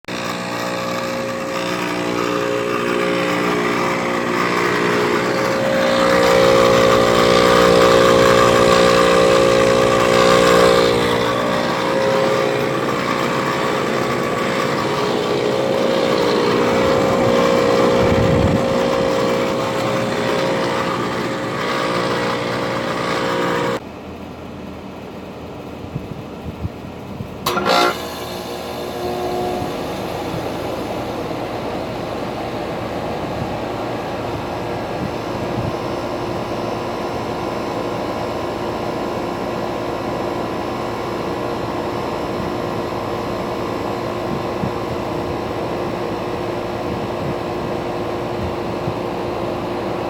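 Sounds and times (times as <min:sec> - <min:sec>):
steady tones: 0:00.1 - 0:23.8.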